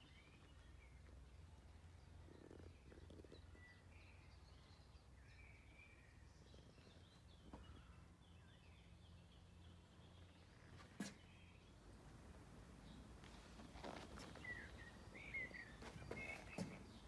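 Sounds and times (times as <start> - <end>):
faint bird chirps: 13.8 - 17.0.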